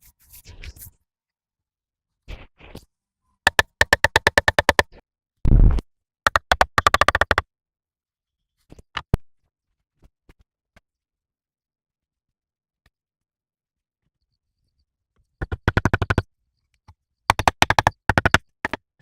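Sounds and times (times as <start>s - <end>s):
rapid sharp knocks: 3.5s - 4.9s, 17.3s - 18.8s.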